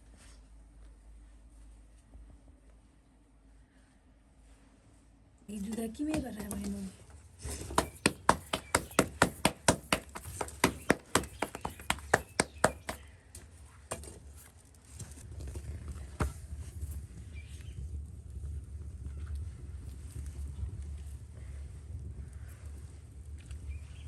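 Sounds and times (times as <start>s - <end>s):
sharp knocking: 5.9s - 6.9s, 7.5s - 13.0s
sharp knocks: 5.9s - 6.9s, 7.5s - 13.0s, 13.9s - 14.2s.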